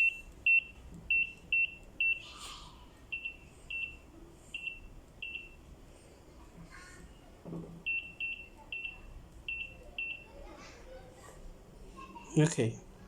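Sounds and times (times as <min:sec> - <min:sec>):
barcode scanner beeping: 0:00.0 - 0:02.2, 0:03.1 - 0:04.0, 0:04.6 - 0:05.6, 0:07.9 - 0:10.3.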